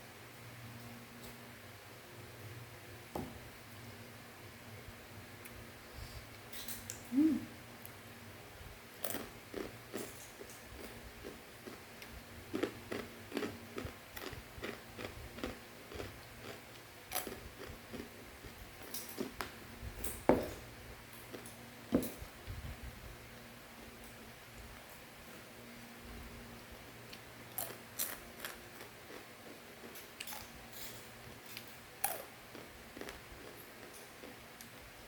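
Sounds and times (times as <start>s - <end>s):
crunchy snack being chewed: 9.0s - 18.1s, 27.1s - 34.4s.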